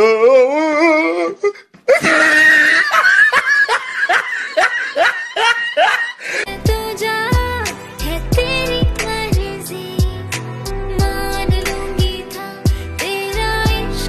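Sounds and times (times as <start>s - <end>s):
person laughing: 1.4s - 6.5s
song with deep bass line: 6.5s - 14.0s.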